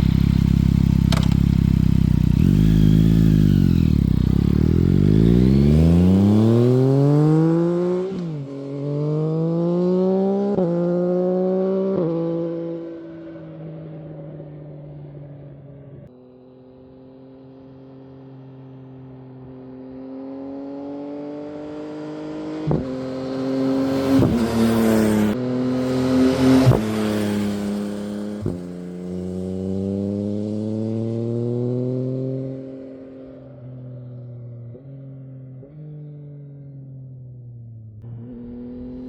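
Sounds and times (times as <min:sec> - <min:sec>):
motorcycle engine revving: 0:00.0 - 0:12.9, 0:19.8 - 0:39.0
exhaust cracks: 0:00.8 - 0:01.7.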